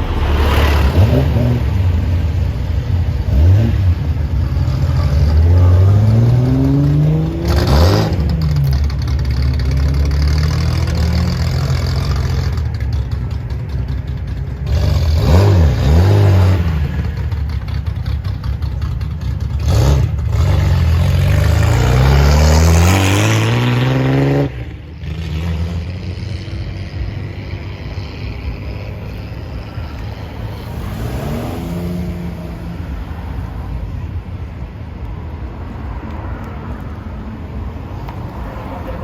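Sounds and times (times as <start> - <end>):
car engine revving hard: 0.0 - 8.7, 19.6 - 26.6, 27.8 - 33.0
other engines running: 0.0 - 22.8.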